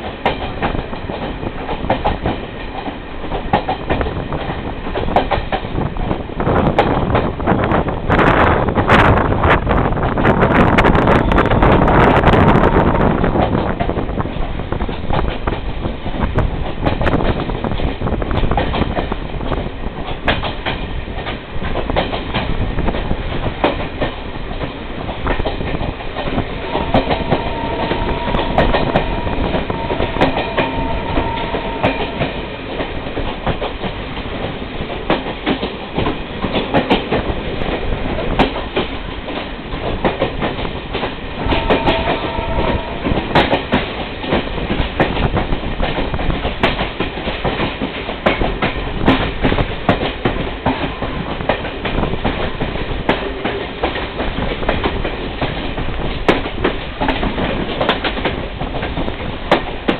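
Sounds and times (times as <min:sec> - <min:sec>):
train wheels clicking on rails: 0:00.0 - 0:59.9
high steady tone: 0:26.2 - 0:33.8, 0:41.4 - 0:44.2.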